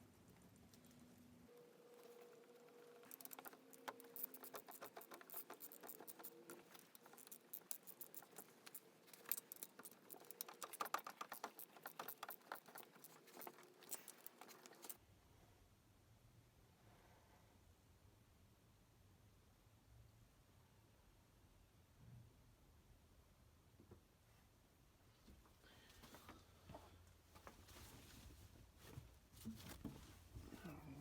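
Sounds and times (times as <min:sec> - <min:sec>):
light clicking and tapping: 0:02.9 - 0:15.0.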